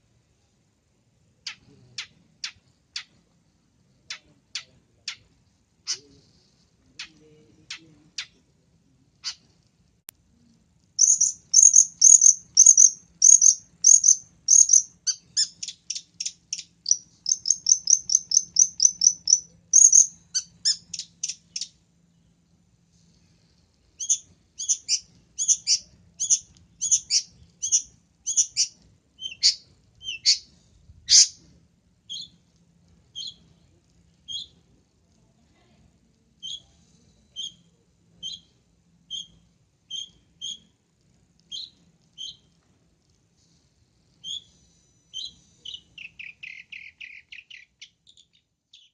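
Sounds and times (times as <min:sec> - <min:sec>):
bird sharp high chirps: 0:11.0 - 0:21.8, 0:24.0 - 0:30.5, 0:31.1 - 0:31.4, 0:45.1 - 0:48.9.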